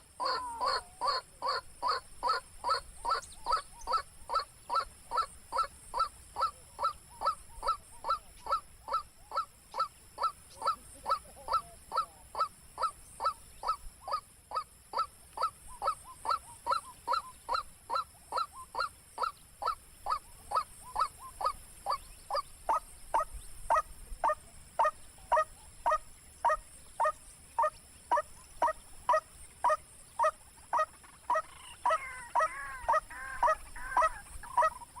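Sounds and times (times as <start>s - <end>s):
waterhen harsh honking call: 22.7s - 35.0s.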